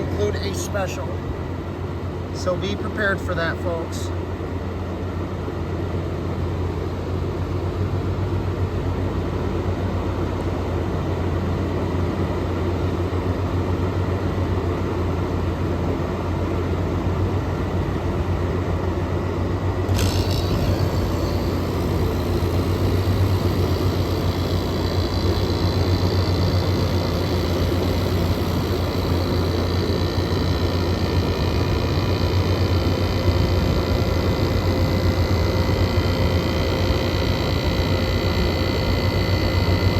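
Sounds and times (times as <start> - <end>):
high whining tones: 0.0 - 1.6, 19.8 - 39.9
air conditioner humming: 0.0 - 39.9.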